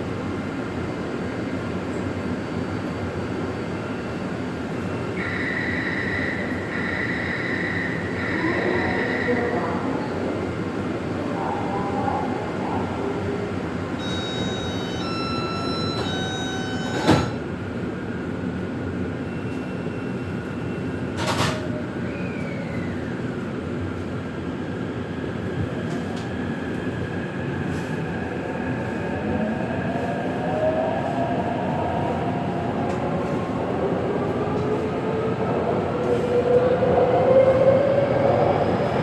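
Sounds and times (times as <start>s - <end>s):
train doors shutting: 13.9s - 17.6s, 21.0s - 23.1s
door-warning chime: 14.0s - 17.4s
train motor whine: 14.0s - 17.4s.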